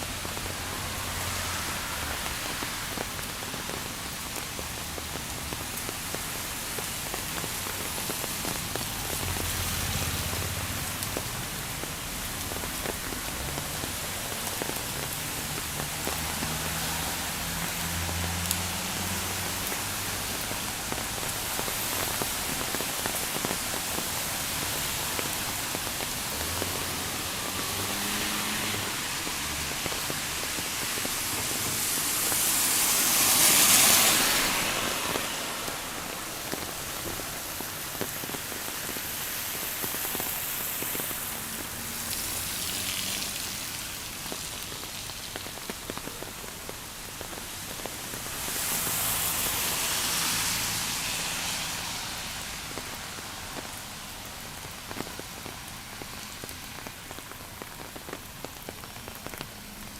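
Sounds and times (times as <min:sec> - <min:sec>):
rain patter: 0:00.0 - 0:59.9.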